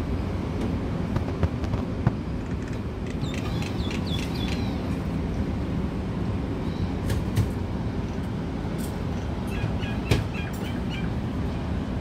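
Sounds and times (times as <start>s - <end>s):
bird chirping: 3.2s - 4.8s, 9.5s - 11.1s.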